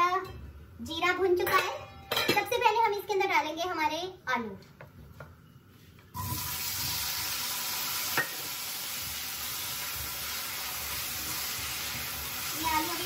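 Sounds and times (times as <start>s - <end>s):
potatoes sizzling in hot oil: 6.2s - 13.0s.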